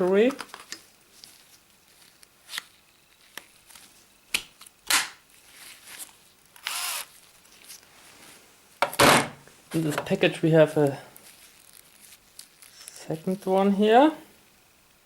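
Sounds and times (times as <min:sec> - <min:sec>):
short rustle or scrape: 0:07.1 - 0:08.6.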